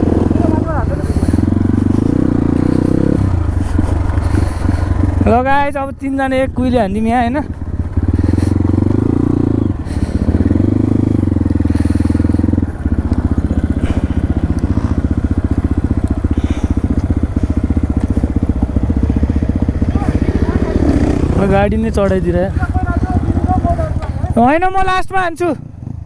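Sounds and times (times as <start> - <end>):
dirt bike engine idling: 0.0 - 26.0
dirt bike engine revving: 0.0 - 26.0.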